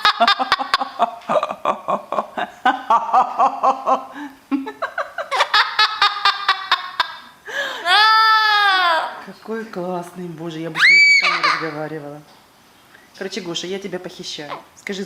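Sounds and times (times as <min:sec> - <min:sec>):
choppy chuckling laughter: 0:00.0 - 0:07.3.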